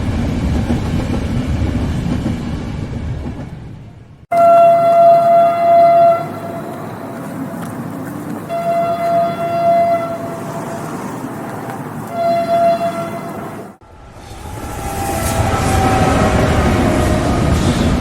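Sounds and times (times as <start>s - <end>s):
moving train rumbling: 0.0s - 18.0s
train horn blasts: 4.3s - 6.7s, 8.5s - 10.6s, 12.1s - 13.4s.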